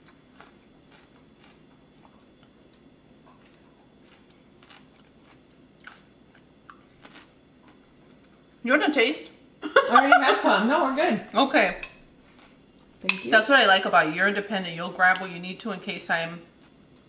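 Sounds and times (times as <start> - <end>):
faint chewing: 0.0 - 8.5, 12.3 - 13.0.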